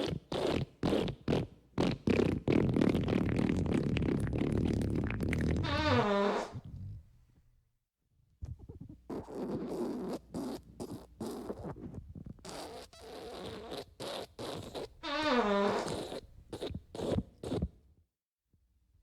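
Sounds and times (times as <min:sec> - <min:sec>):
fart sound effects: 0:01.0 - 0:07.0, 0:12.6 - 0:17.7.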